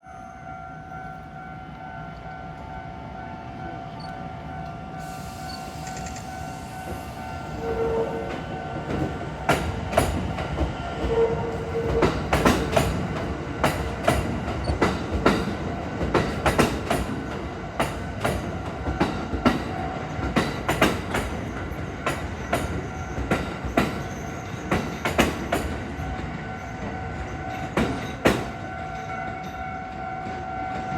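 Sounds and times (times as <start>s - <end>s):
train wheels clacking over rail joints: 8.3s - 29.7s.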